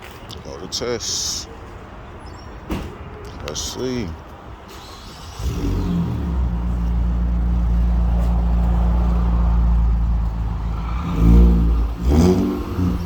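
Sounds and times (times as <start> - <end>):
car engine starting and idling: 4.6 - 13.0
engine revving: 4.7 - 13.0.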